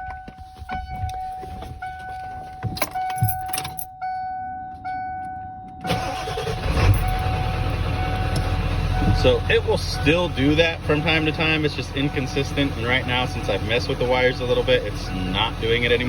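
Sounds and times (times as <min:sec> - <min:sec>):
dashboard warning chime: 0:00.0 - 0:16.0
clicks and key rattles: 0:02.6 - 0:03.9
diesel engine cranking and running: 0:05.8 - 0:16.0.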